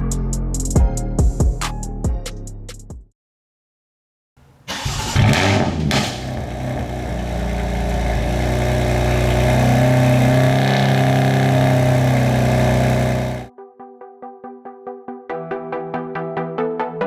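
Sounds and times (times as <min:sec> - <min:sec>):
car engine idling through exhaust: 0:04.4 - 0:13.5.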